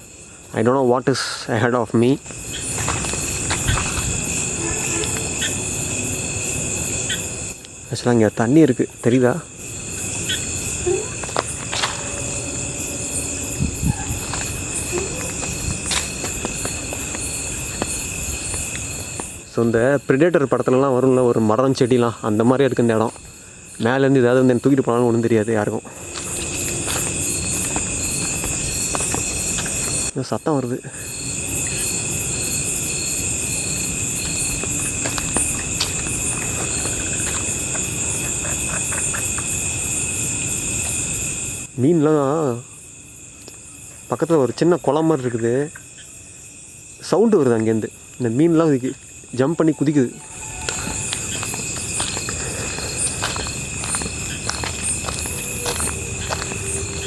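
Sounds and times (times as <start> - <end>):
crickets and night insects trilling: 0.0 - 57.0.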